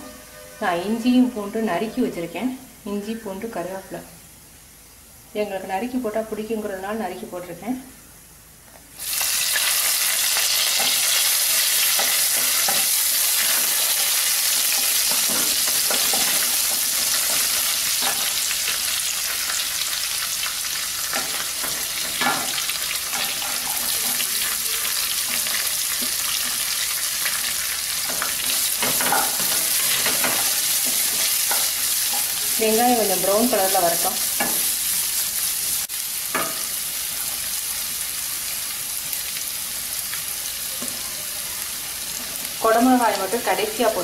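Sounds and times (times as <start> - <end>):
food sizzling in hot oil: 8.9 - 44.0.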